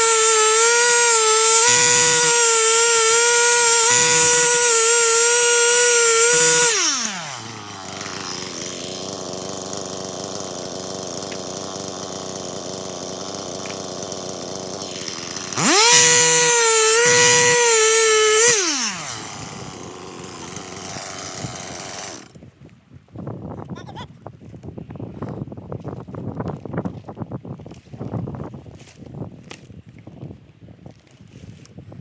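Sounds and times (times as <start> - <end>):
chainsaw revving and idling: 0.0 - 22.4.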